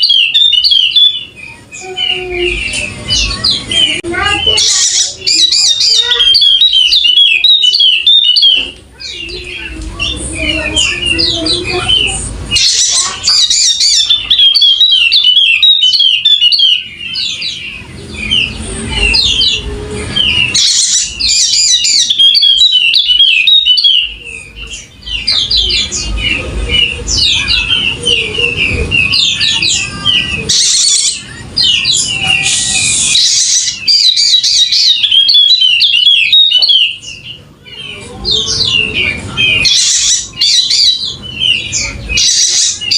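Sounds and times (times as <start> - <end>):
bird twittering song: 0.0 - 42.9
low rumbling noise: 8.6 - 14.3, 16.8 - 22.0, 24.1 - 33.9.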